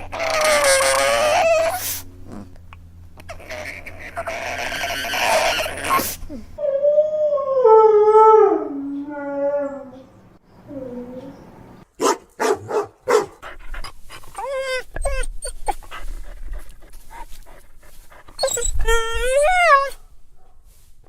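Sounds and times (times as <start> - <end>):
dog whining and yelping: 0.0 - 2.0, 3.2 - 6.7, 13.4 - 20.0.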